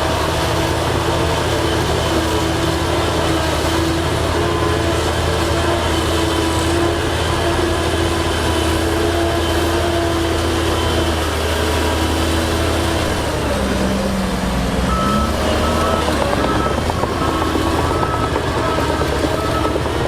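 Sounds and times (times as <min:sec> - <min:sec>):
diesel machinery engine running: 0:00.0 - 0:20.0
reversing alarm beeping: 0:14.8 - 0:20.0.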